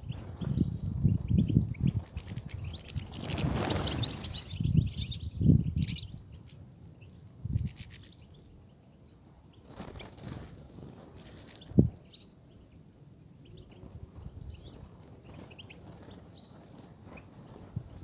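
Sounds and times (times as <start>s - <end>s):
finches chirping and twittering: 0.1s - 6.4s, 13.4s - 15.8s.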